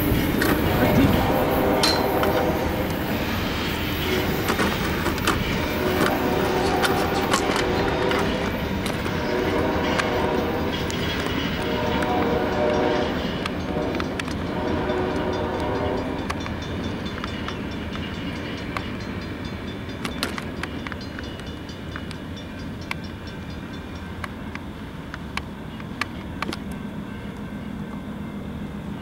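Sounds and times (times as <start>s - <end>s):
train horn blasts: 0.0s - 16.8s
wheels clattering over rails: 0.0s - 26.8s
train rumble: 0.0s - 29.0s.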